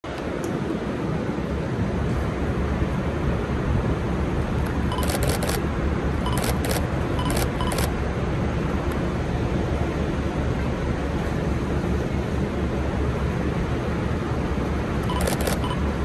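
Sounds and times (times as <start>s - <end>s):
camera shutters clicking: 5.0s - 5.6s, 6.3s - 7.9s, 15.1s - 15.8s.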